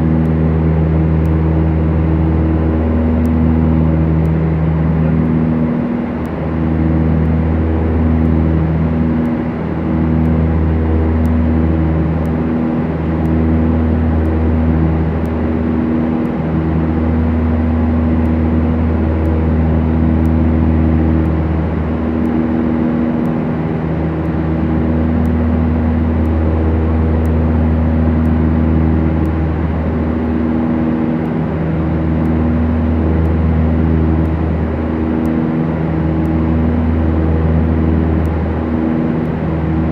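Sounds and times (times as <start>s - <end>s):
twin propeller engines droning: 0.0s - 39.9s.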